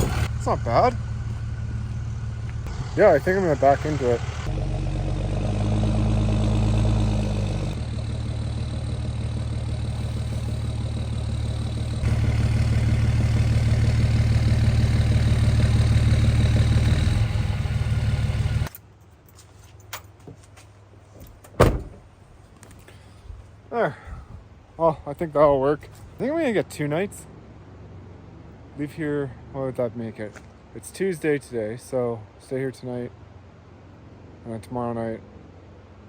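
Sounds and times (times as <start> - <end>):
pickup truck engine running: 0.0 - 18.7.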